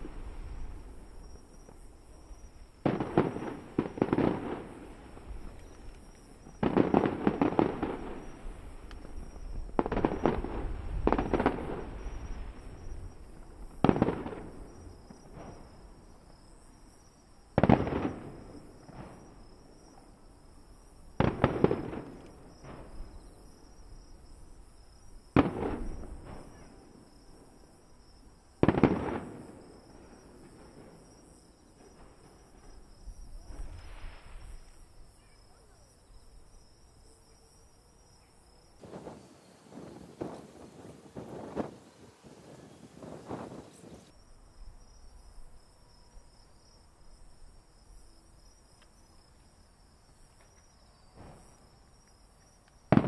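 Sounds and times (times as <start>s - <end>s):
fireworks bursting: 0.0s - 16.3s, 17.6s - 20.0s, 21.2s - 23.6s, 25.3s - 27.2s, 28.6s - 34.9s, 38.8s - 44.2s, 51.1s - 51.7s.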